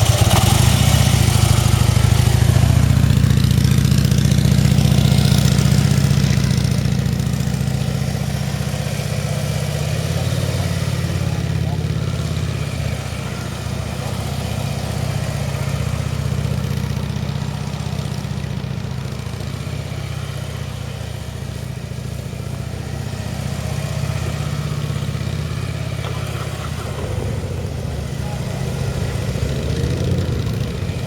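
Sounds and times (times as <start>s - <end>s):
motorcycle engine running: 0.0s - 31.0s
rain hissing: 0.0s - 31.0s.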